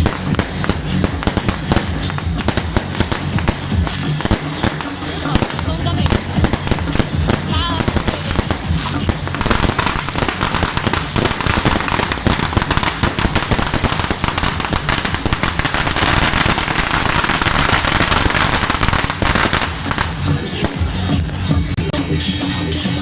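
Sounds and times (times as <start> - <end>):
firecrackers crackling: 0.0 - 22.0.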